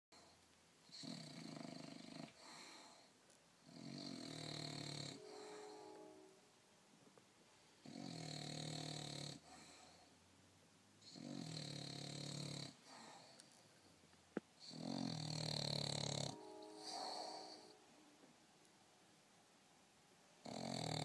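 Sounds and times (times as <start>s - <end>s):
dog snoring: 0.2s - 6.1s, 7.8s - 10.1s, 11.0s - 13.5s, 14.6s - 17.8s, 20.4s - 21.0s.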